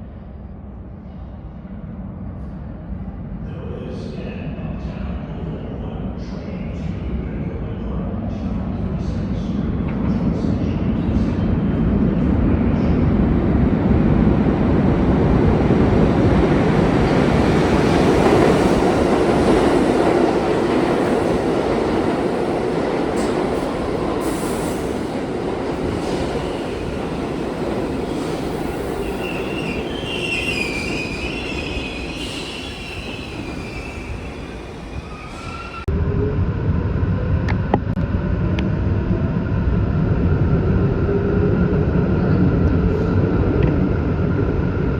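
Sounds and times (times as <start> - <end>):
subway train rumbling: 0.0 - 44.9
train wheels squealing: 28.1 - 35.9.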